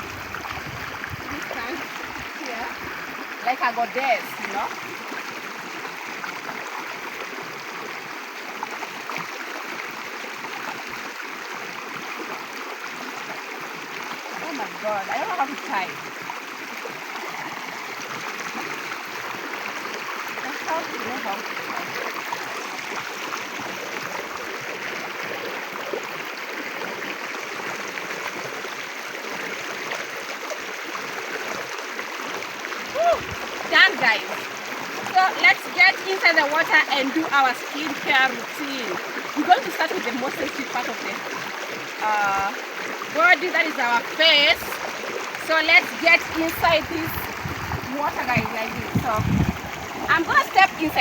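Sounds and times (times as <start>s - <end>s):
river rushing and babbling: 0.0s - 51.0s
river rushing: 32.7s - 40.9s, 43.1s - 51.0s.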